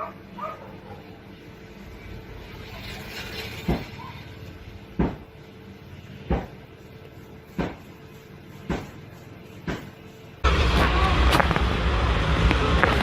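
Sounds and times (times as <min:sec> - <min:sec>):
sharp knocks: 0:05.0 - 0:05.2, 0:06.3 - 0:06.6, 0:07.6 - 0:07.8, 0:08.7 - 0:09.0.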